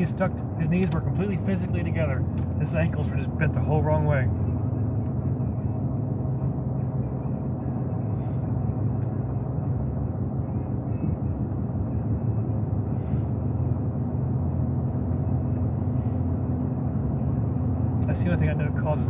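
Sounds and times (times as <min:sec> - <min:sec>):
truck engine and tyres rumbling: 0:00.0 - 0:19.0.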